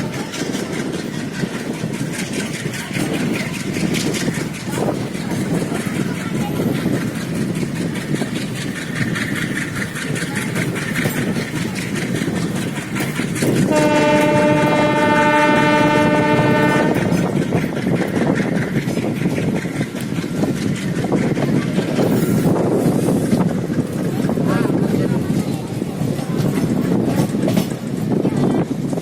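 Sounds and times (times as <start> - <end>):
train wheels clattering: 0.0 - 29.0
locomotive horn blast: 13.7 - 17.3.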